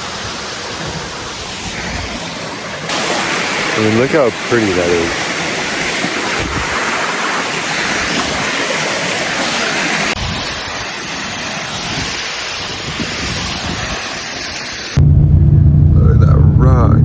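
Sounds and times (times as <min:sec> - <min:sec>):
rushing waterfall: 0:00.0 - 0:15.0
dull rushing with low rumbles: 0:14.9 - 0:17.0.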